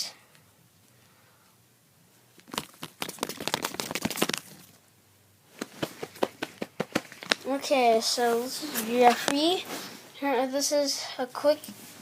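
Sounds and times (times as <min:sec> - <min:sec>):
paper crinkling and rustling: 0:02.4 - 0:04.8.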